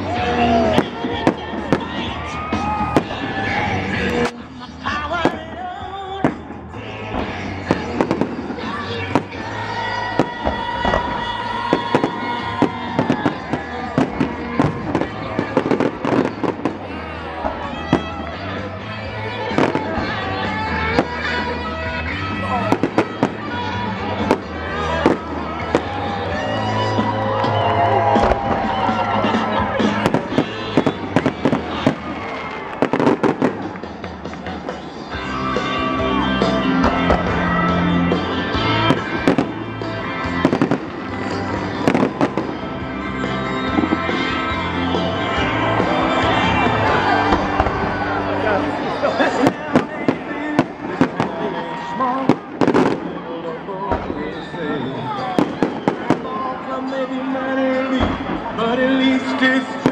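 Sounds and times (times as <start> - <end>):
fireworks bangs and crackles: 0.0 - 59.9
music with long held notes: 2.6 - 54.2.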